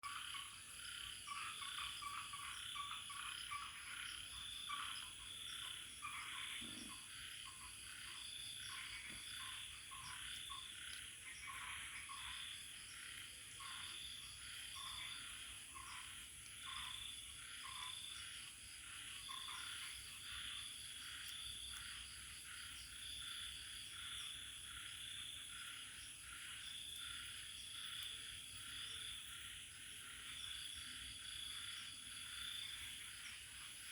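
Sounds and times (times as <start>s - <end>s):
frogs calling: 0.0s - 33.9s
insects trilling: 0.0s - 33.9s.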